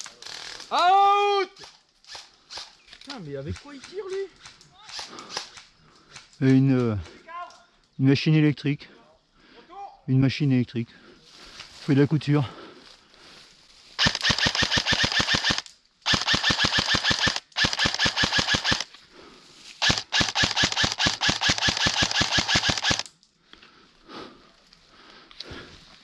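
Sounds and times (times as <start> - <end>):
airsoft gun rapid bursts: 14.0 - 18.9, 19.8 - 23.1.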